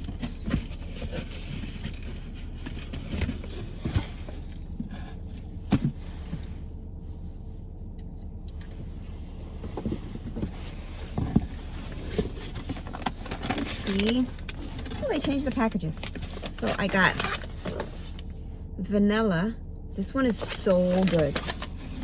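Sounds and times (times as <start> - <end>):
cardboard and packaging rustling: 0.0 - 6.6, 9.5 - 18.4, 20.3 - 22.0
steady low hum: 0.0 - 22.0.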